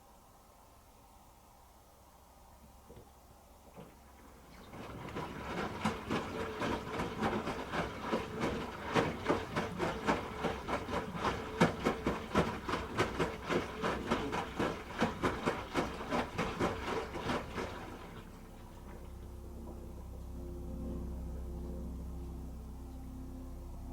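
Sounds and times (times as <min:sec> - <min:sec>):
washing machine motor hum: 0:03.2 - 0:23.9
wet laundry knocking in drum: 0:04.7 - 0:18.2.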